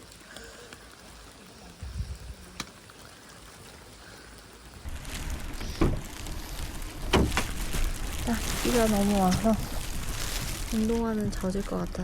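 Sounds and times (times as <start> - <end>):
heavy rain: 0.0 - 12.0
low rumbling noise: 4.8 - 12.0.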